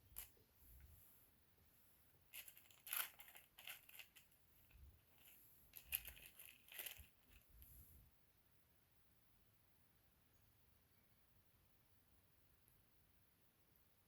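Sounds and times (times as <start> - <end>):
scratchy handling rustles and clicks: 2.3 - 7.6.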